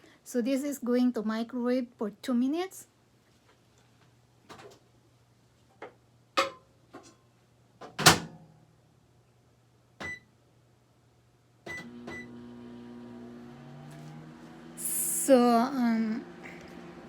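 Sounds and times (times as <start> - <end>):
microwave oven humming: 11.7 - 17.0.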